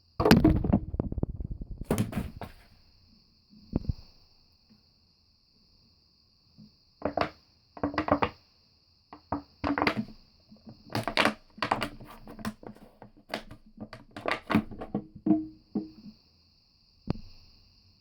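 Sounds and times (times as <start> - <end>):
plastic bottle crackling when crushed: 0.2 - 2.8, 10.8 - 15.6.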